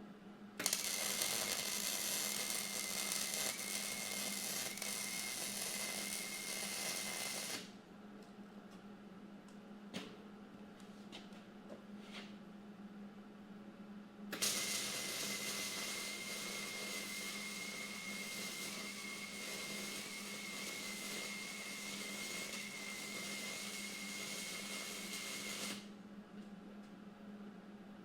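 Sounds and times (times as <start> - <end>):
power tool whining: 0.6 - 7.6, 14.4 - 25.8.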